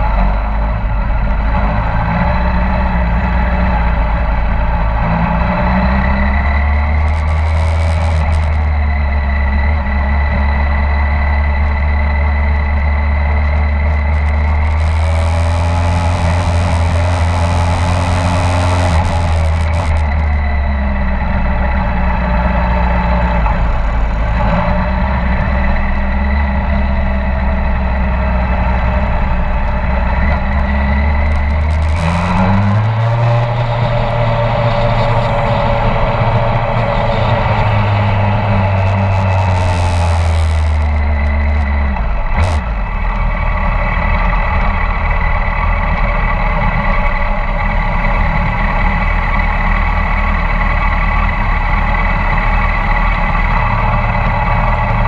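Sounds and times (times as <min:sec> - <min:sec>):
motorcycle engine running: 0:00.0 - 0:55.0
loud rushing noise: 0:06.6 - 0:08.7, 0:13.8 - 0:21.0, 0:30.9 - 0:41.6.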